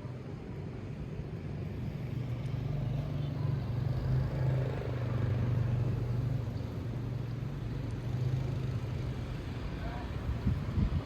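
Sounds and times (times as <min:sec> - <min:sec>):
wind rumbling against microphone: 0:09.1 - 0:11.0.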